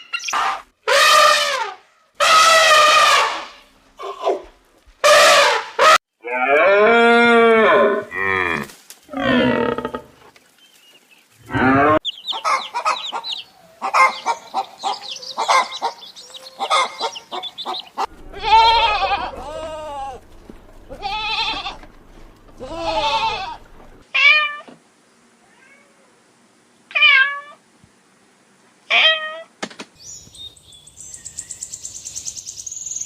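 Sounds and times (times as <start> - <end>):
cow mooing: 18.0 - 24.0.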